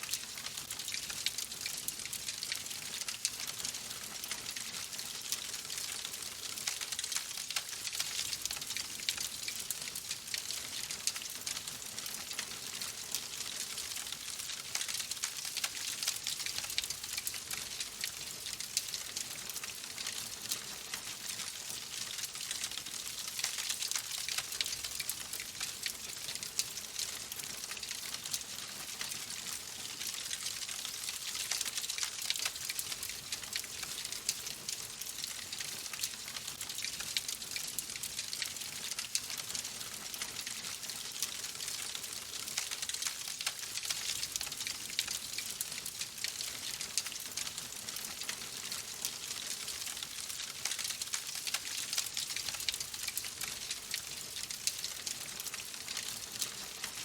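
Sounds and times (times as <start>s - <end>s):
wood fire crackling: 41.4s - 57.0s.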